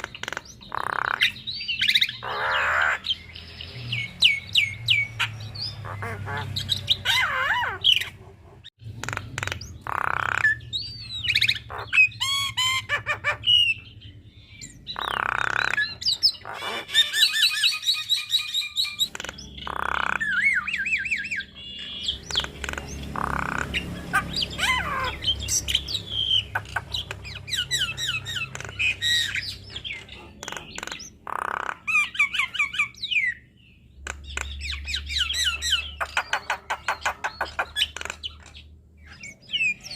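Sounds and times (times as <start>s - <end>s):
bird harsh squawks: 0.0s - 33.5s
bird whistling song: 10.2s - 31.1s, 34.3s - 39.9s.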